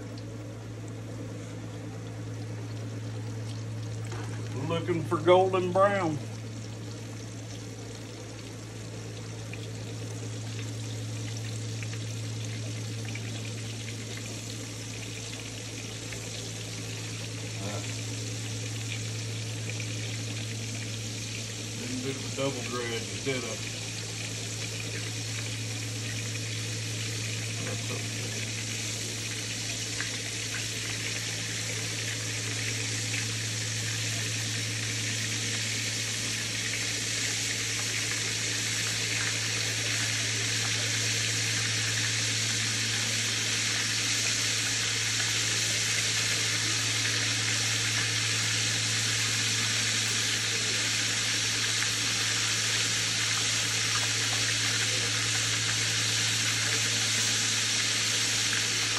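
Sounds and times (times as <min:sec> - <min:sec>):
steady low hum: 0:00.0 - 0:58.9
meat sizzling in hot oil: 0:02.2 - 0:58.9.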